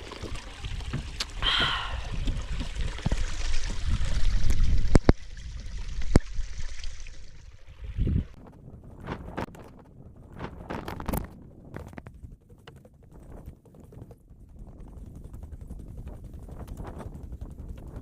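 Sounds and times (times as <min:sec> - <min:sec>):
water trickling and gurgling: 0:00.0 - 0:08.5.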